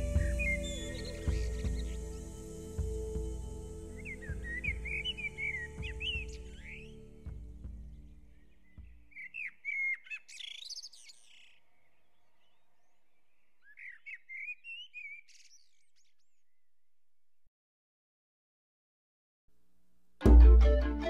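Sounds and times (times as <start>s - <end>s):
background music: 0.0s - 10.7s, 20.2s - 21.0s
birds chirping and warbling: 0.0s - 16.7s.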